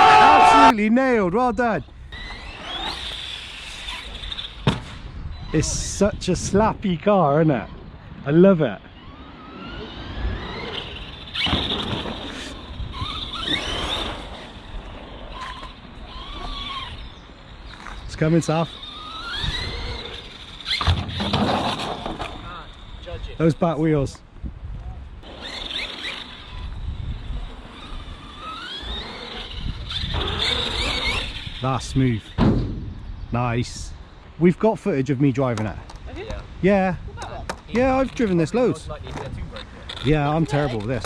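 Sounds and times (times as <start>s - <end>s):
tyres and wind rumble: 0.0s - 41.0s
electric motor whining: 2.1s - 4.6s, 7.6s - 23.6s, 25.2s - 32.4s.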